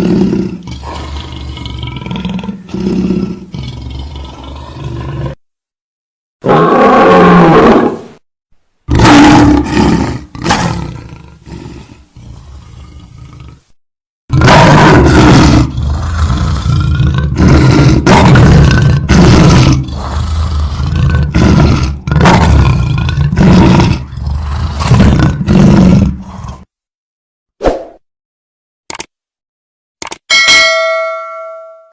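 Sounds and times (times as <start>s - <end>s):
lion roaring and snarling: 0.0s - 5.4s, 6.4s - 8.2s, 8.9s - 26.7s.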